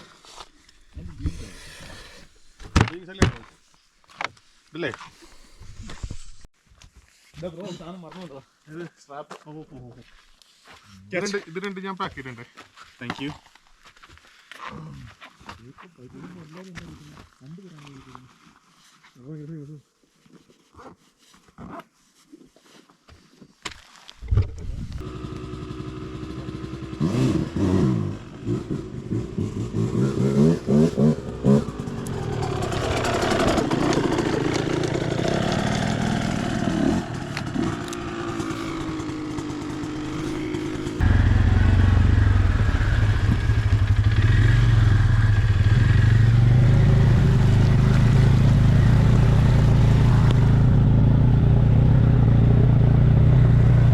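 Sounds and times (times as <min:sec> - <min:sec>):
vehicle engine starting and revving: 0:25.0 - 0:53.9.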